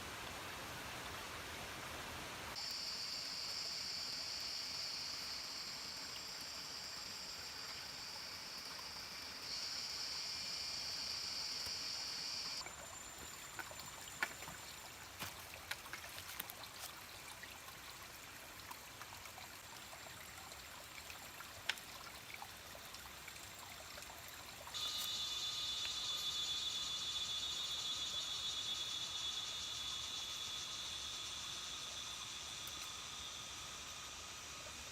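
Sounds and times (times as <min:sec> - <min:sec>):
high-pitched insect buzz: 0:02.6 - 0:13.3, 0:24.8 - 0:34.9
water trickling: 0:12.6 - 0:25.1
clicks and drips: 0:21.5 - 0:22.0.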